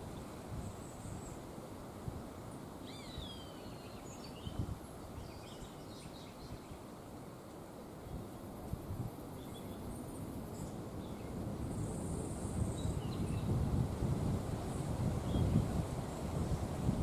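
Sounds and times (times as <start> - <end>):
faint birdsong: 0.0 - 1.7, 2.4 - 7.4, 8.0 - 13.7, 14.6 - 16.8
wind with low gusts: 0.0 - 17.0.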